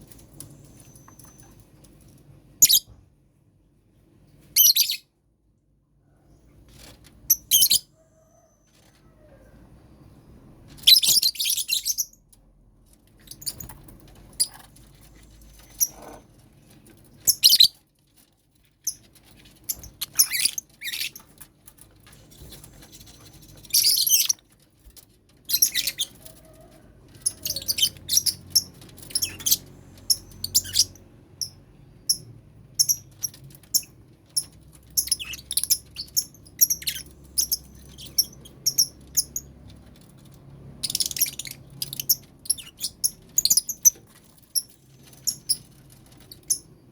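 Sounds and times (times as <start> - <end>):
lovebirds chirping and screeching: 2.6 - 2.9, 7.2 - 8.9, 10.8 - 12.2, 13.2 - 16.2, 17.2 - 17.8, 19.6 - 21.5, 22.3 - 24.4, 25.4 - 32.2, 32.8 - 40.1, 40.7 - 46.7.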